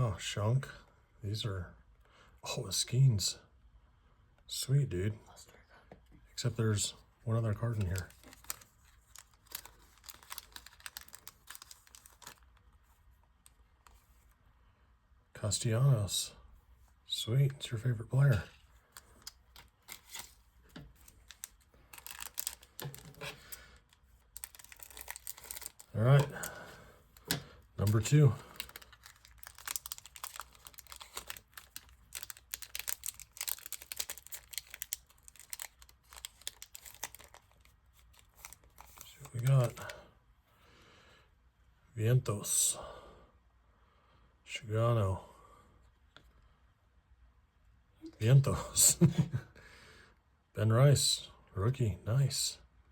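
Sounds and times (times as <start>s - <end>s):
cards being handled: 7.5s - 14.3s, 18.3s - 39.9s
foil wrapper crinkling: 7.6s - 12.8s, 18.8s - 39.9s.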